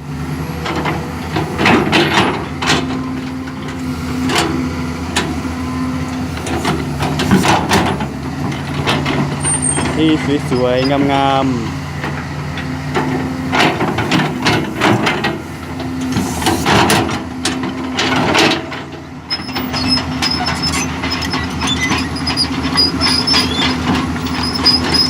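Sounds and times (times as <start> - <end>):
diesel engine running: 0.0 - 25.0
metal clanks and scraping: 0.6 - 5.4, 6.1 - 11.3, 12.0 - 25.0
steel tracks squealing: 9.3 - 11.7, 19.3 - 25.0.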